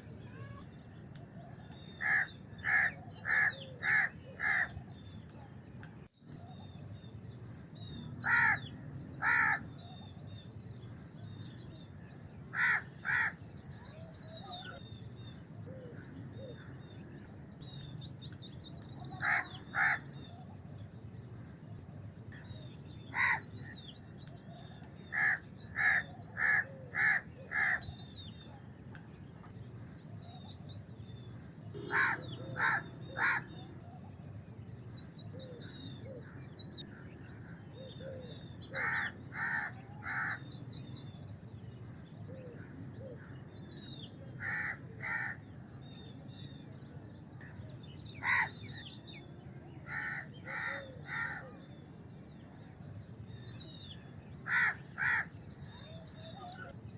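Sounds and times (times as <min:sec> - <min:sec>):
low background noise: 0:00.0 - 0:56.9
small birds twittering: 0:00.0 - 0:56.9
crows cawing: 0:02.0 - 0:04.8, 0:08.2 - 0:09.6, 0:12.5 - 0:13.4, 0:19.1 - 0:20.1, 0:23.1 - 0:23.5, 0:25.1 - 0:27.9, 0:31.8 - 0:33.6, 0:38.8 - 0:40.5, 0:44.4 - 0:45.4, 0:48.2 - 0:48.5, 0:49.9 - 0:51.5, 0:54.4 - 0:55.4.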